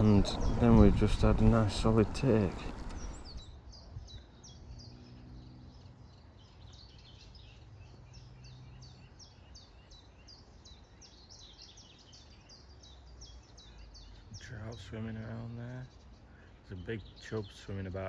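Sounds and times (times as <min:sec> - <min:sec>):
low hum: 0:00.0 - 0:03.5
outdoor background noise: 0:00.0 - 0:18.0.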